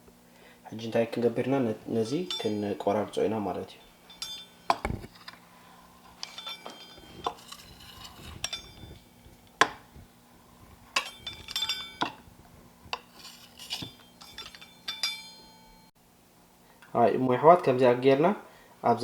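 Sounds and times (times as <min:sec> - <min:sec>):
metal utensils clinking on dishes: 0:01.9 - 0:05.4, 0:06.0 - 0:09.8, 0:10.9 - 0:12.3, 0:12.9 - 0:15.9.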